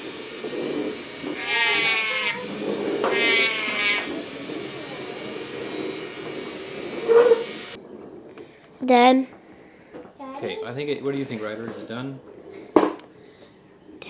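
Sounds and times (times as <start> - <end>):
power sander grinding wood: 0.0 - 7.8.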